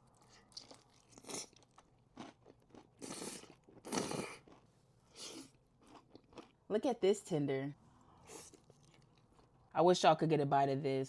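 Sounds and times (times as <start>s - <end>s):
crunching fried chicken: 0.0s - 4.7s.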